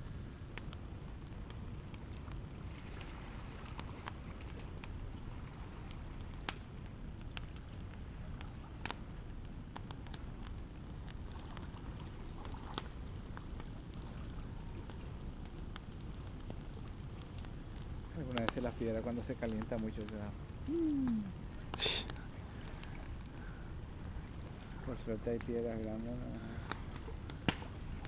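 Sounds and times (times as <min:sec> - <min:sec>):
campfire crackling: 0:00.0 - 0:28.0
fire popping: 0:00.0 - 0:28.0.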